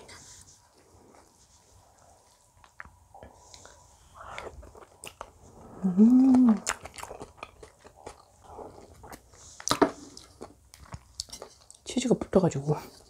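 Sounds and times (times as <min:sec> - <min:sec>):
chewing with wet mouth clicks: 0:02.2 - 0:05.3, 0:06.6 - 0:11.9
closed-mouth hum: 0:02.8 - 0:07.1.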